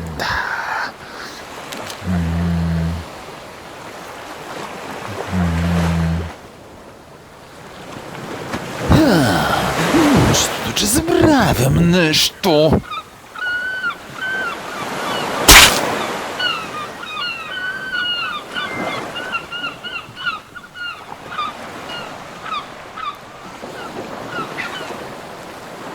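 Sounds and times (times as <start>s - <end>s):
sea surf: 0.0s - 25.9s
seagulls calling: 9.4s - 25.0s.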